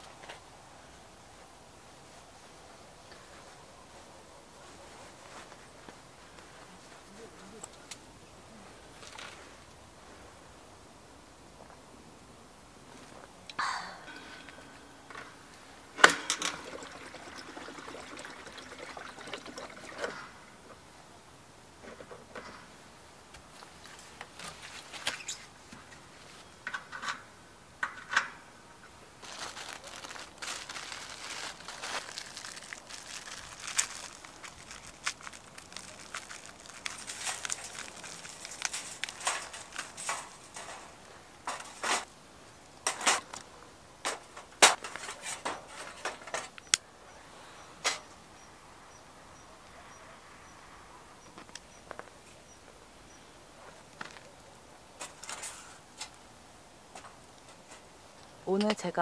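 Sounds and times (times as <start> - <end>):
crackling rustle of fire starter: 8.7 - 10.4, 14.4 - 20.2, 23.3 - 28.3, 29.2 - 46.8, 55.0 - 56.2.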